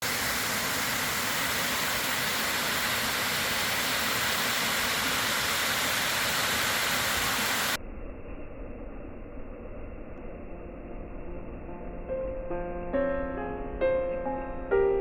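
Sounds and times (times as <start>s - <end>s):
steady rushing hiss: 0.0s - 7.8s.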